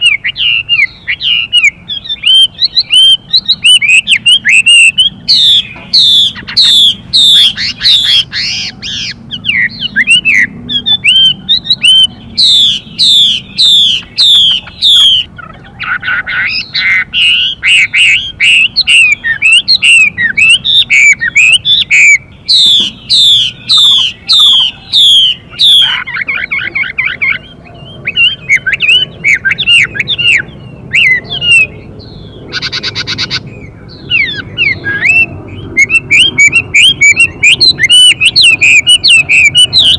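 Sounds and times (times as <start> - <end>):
bird singing whistled notes: 0.0 - 39.9
harsh buzzy bird calls: 0.0 - 39.9.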